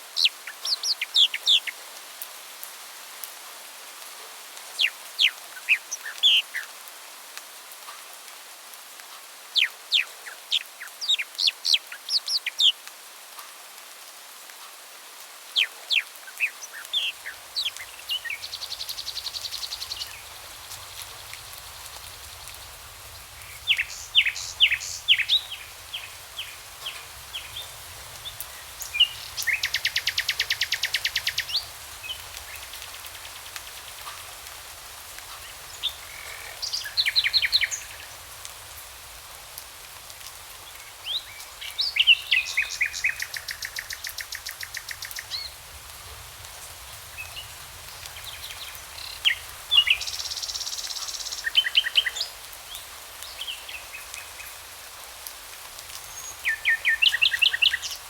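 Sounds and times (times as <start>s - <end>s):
steady background hiss: 0.0s - 58.0s
songbirds chirping and trilling: 0.1s - 1.7s, 15.6s - 34.2s, 35.4s - 38.3s, 40.8s - 45.6s, 47.0s - 54.6s.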